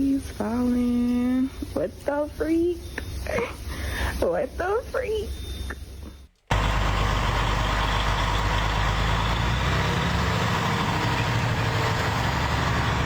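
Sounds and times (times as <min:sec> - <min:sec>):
low engine rumble: 0:06.5 - 0:13.0.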